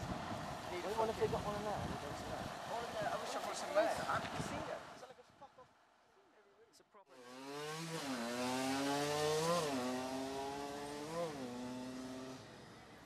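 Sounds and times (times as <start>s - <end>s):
vehicle engine accelerating: 7.2s - 12.5s.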